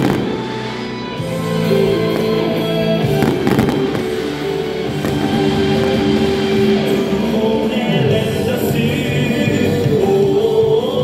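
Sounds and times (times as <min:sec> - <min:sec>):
fireworks bangs and crackles: 0:00.0 - 0:07.3
cheer song playing: 0:00.0 - 0:11.0.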